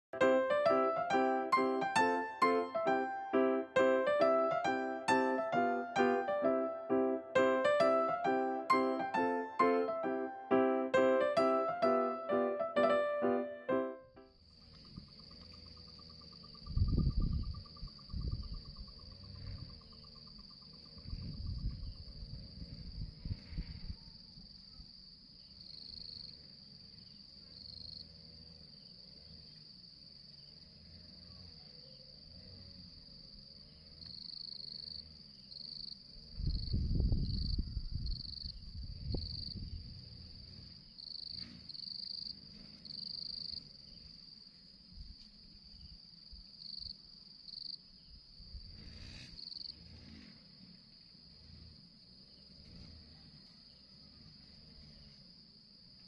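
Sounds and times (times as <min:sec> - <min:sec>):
pulsed insect calls: 0:14.4 - 0:23.1, 0:25.4 - 0:44.7
insect high-pitched trill: 0:33.6 - 0:44.5.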